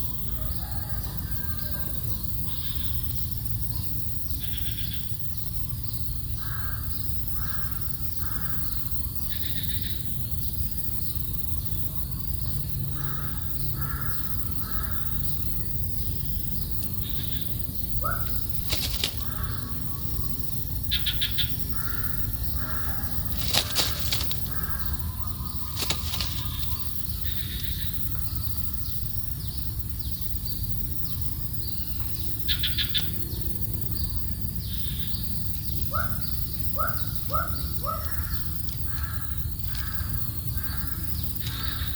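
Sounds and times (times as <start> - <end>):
small birds chirping: 2.4 - 41.9
sharp clicks: 18.4 - 19.6, 23.2 - 25.0, 25.7 - 26.8.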